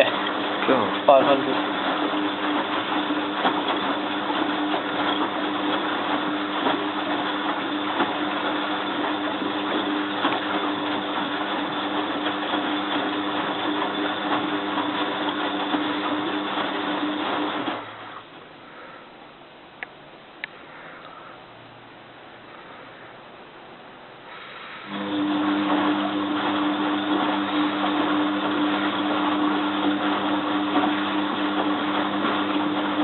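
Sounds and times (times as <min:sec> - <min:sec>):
washing machine drum spinning: 0:00.0 - 0:18.2, 0:24.8 - 0:33.0.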